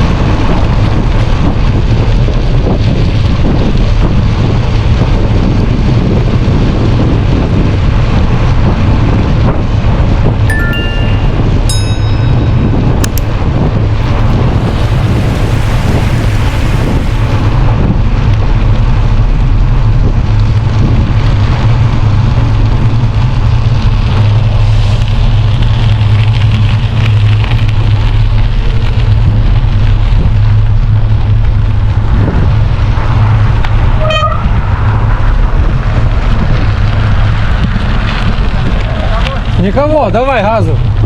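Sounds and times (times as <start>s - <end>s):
bicycle tyres rumbling over snow: 0.0s - 41.0s
wind buffeting microphone: 0.0s - 41.0s
short high beep: 10.5s - 12.7s.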